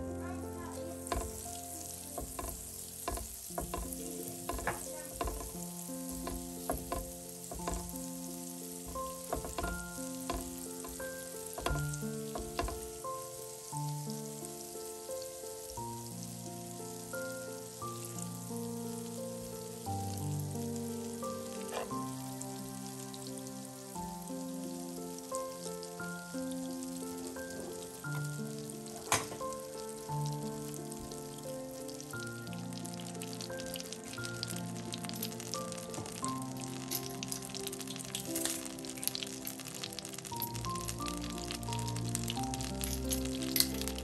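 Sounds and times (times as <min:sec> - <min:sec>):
background music with slow chords: 0:00.0 - 0:44.0
food sizzling in a pan: 0:00.0 - 0:44.0
utensil knocking while stirring: 0:01.0 - 0:01.5, 0:02.2 - 0:08.0, 0:08.8 - 0:13.0.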